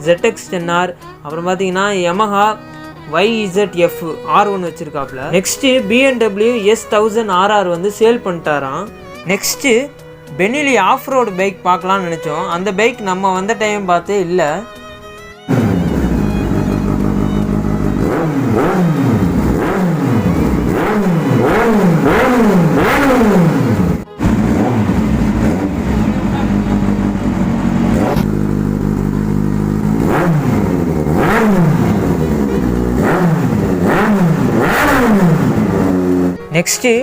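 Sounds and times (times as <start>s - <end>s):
motorcycle engine revving: 15.4s - 36.5s.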